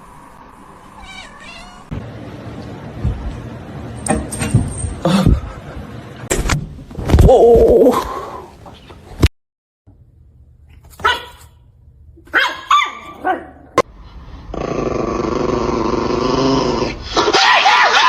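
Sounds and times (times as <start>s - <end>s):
dog barking: 11.0s - 11.6s, 12.3s - 13.4s.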